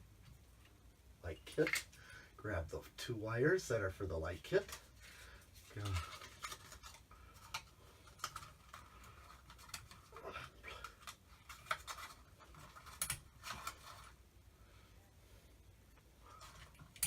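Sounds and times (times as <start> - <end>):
hands handling light kit parts: 4.4 - 14.2, 16.0 - 17.0.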